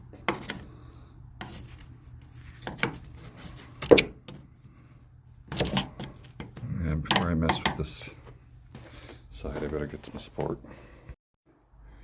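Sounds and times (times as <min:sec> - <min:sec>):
knocks on wood and metal: 0:06.4 - 0:07.9.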